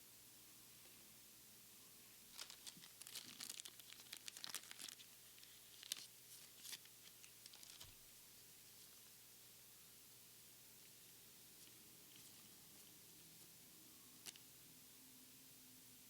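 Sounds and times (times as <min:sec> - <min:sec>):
foil pack crinkling and tearing: 0:02.3 - 0:08.0, 0:14.2 - 0:14.4.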